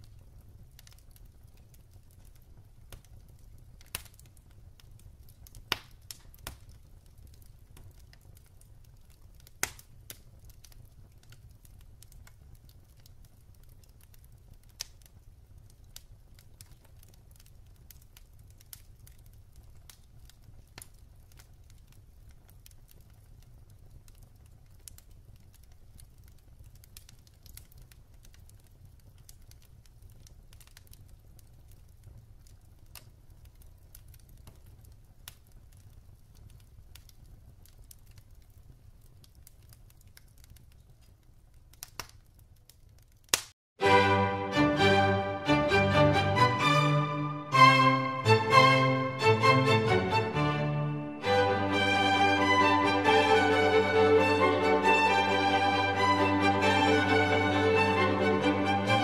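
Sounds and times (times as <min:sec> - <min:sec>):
low rumble of flames: 0:00.0 - 0:41.8
wood fire crackling: 0:00.0 - 0:59.0.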